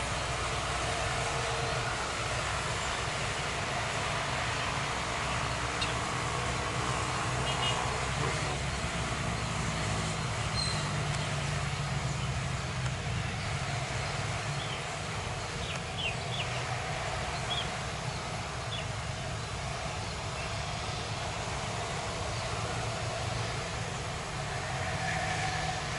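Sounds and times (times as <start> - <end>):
low engine rumble: 0.0 - 25.9
birds chirping: 7.4 - 21.2.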